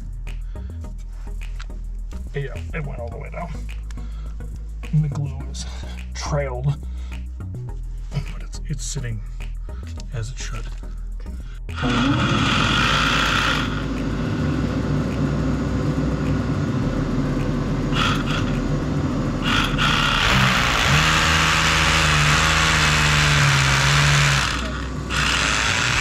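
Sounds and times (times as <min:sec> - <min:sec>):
power tool motor running: 0:11.7 - 0:26.0.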